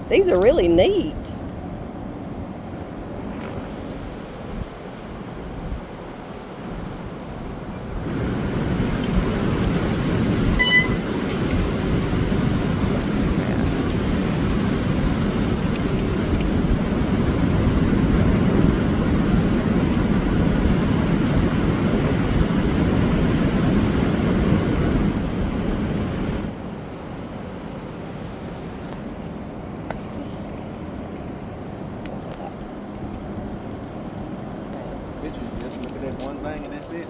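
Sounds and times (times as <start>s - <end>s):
wind rushing over microphone: 0.0s - 27.3s
bike tyre noise: 5.0s - 11.5s, 15.8s - 20.1s
short high squeak: 10.6s - 11.1s.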